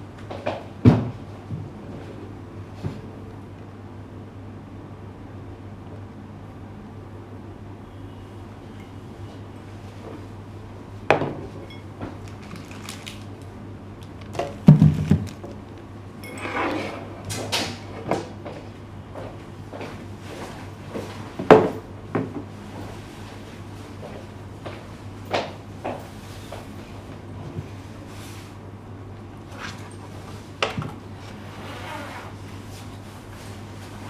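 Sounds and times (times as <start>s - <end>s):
objects knocking and clattering: 11.1s - 13.4s, 14.0s - 15.9s
rustling: 12.2s - 15.8s.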